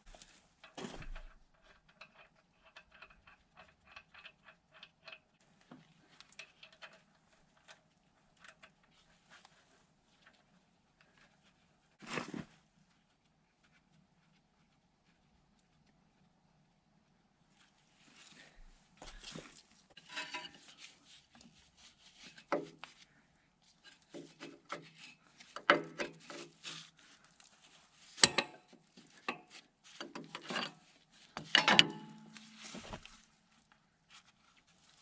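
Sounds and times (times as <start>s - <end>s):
metal tools clinking and scraping: 19.0s - 21.0s, 30.0s - 33.2s.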